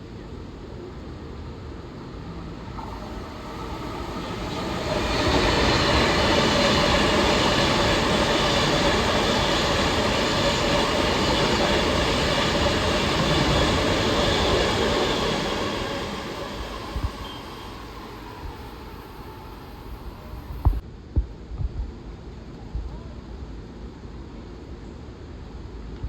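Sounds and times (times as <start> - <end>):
train running past on tracks: 0.0 - 20.8.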